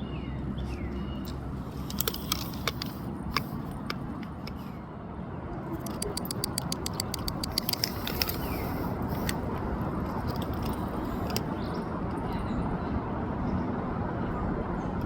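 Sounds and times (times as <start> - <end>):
small metallic clicks: 1.2 - 4.7, 5.8 - 12.2.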